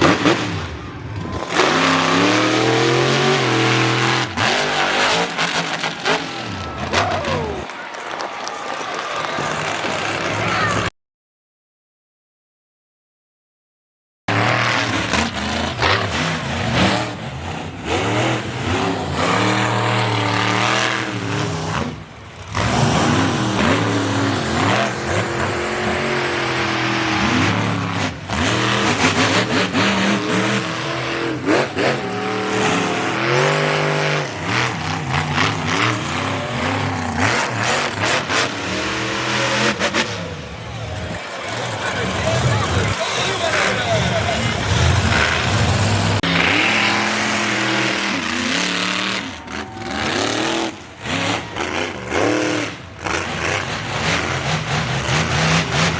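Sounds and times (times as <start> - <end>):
truck engine revving: 0.0 - 8.0, 14.3 - 55.9.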